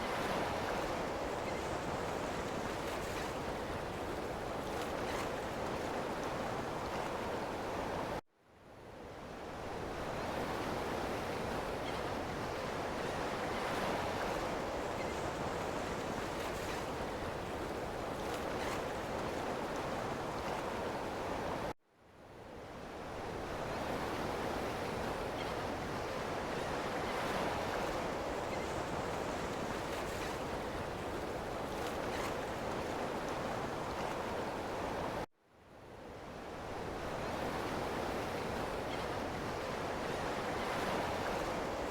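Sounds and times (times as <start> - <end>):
ocean waves washing on shore: 23.0 - 35.3, 36.3 - 41.9.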